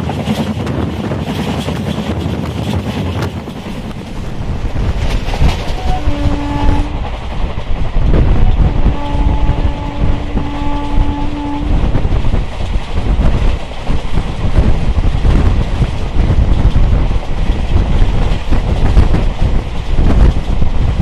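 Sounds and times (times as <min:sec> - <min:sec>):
train wheels rumbling: 0:00.0 - 0:21.0
wind on microphone: 0:00.0 - 0:21.0
locomotive horn: 0:05.5 - 0:07.1, 0:08.1 - 0:12.0.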